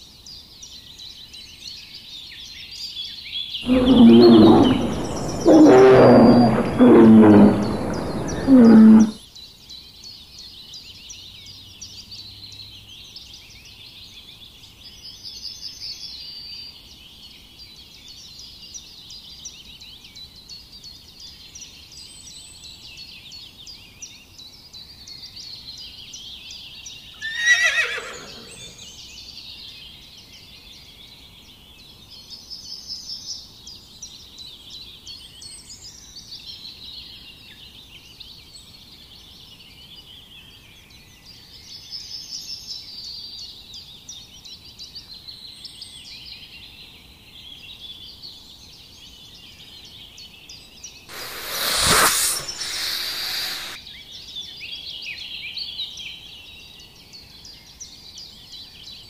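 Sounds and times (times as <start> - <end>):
animal call sliding down in pitch: 3.7 - 9.2, 27.2 - 28.7, 51.1 - 53.8.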